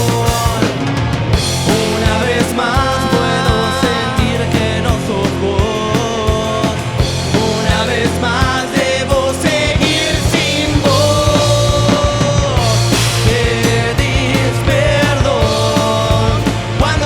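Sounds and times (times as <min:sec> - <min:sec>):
bass guitar: 0:00.0 - 0:17.0
distorted electric guitar: 0:00.0 - 0:17.0
drum kit: 0:00.0 - 0:17.0
sung melodic lines: 0:00.0 - 0:17.0.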